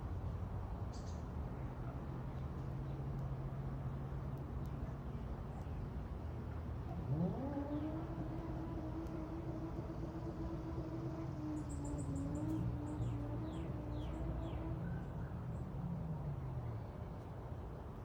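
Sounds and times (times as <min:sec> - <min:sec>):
low background hum: 0:00.0 - 0:18.0
engine speeding up: 0:06.9 - 0:14.9.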